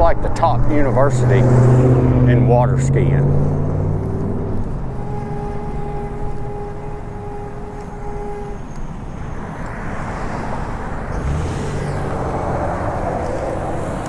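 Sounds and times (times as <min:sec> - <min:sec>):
road rumble: 0:00.0 - 0:14.0
steady hum: 0:04.0 - 0:09.7.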